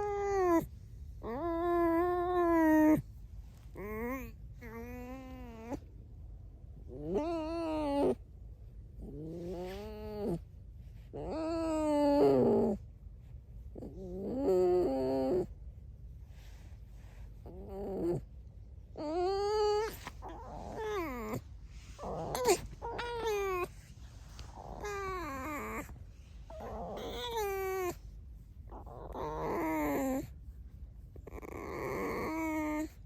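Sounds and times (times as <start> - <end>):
fox squeaking: 19.2 - 21.4, 22.0 - 23.8, 24.4 - 25.9, 26.5 - 28.0.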